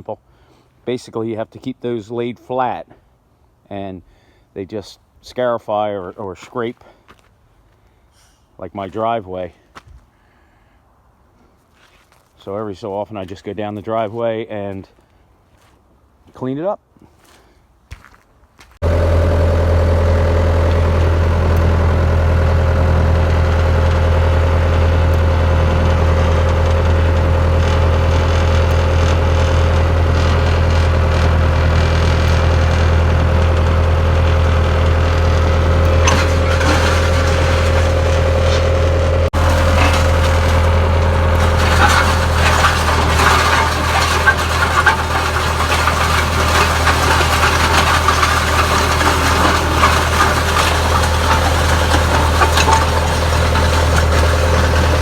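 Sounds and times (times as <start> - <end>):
rough noisy machine sound: 18.8 - 55.0
skid steer engine running: 18.8 - 55.0.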